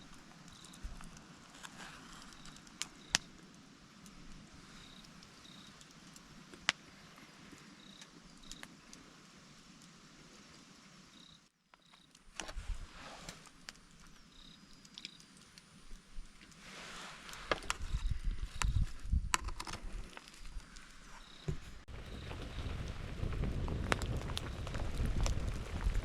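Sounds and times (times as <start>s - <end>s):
cricket chirping: 0.4s - 0.9s, 2.2s - 3.4s, 4.6s - 5.9s, 6.9s - 8.7s, 11.1s - 12.2s, 14.0s - 16.0s, 20.4s - 22.8s, 24.4s - 24.9s
faint hiss: 12.2s - 19.1s.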